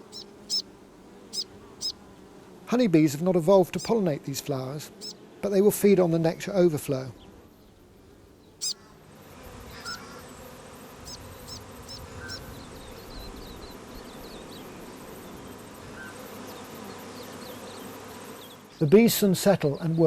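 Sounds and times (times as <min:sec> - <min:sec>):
honeybees buzzing: 0:00.0 - 0:20.0
high bird chirps: 0:00.1 - 0:00.6, 0:08.4 - 0:08.9, 0:11.1 - 0:13.3.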